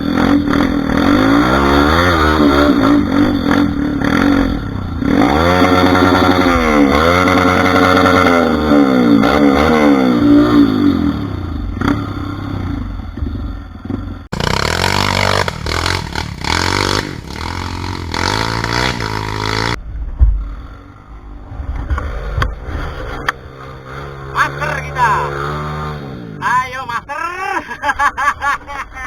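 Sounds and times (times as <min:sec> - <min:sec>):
motorcycle engines revving: 0:00.0 - 0:29.0
heavy thump: 0:19.8 - 0:20.7.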